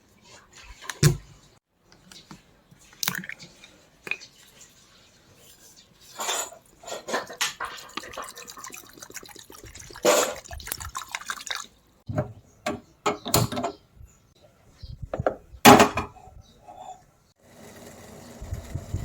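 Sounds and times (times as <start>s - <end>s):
water splashing and dripping: 7.2s - 11.9s.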